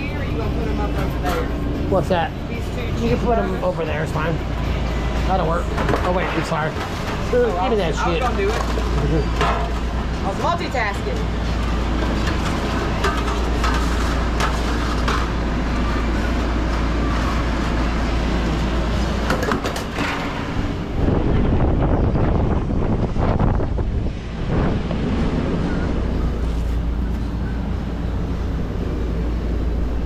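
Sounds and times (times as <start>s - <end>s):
low mechanical hum: 0.0s - 30.0s
cooking clicks and clatter: 5.6s - 20.5s.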